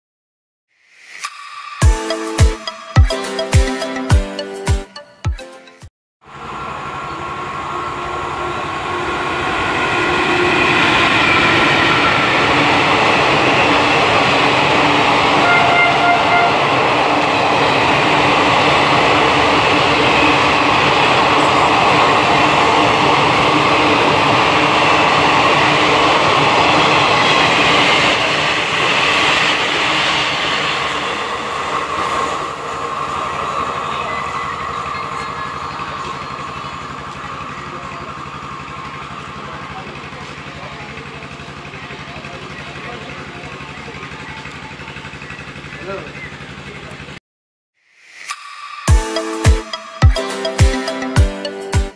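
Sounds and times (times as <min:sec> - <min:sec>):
passenger train passing at speed: 0:06.2 - 0:47.2.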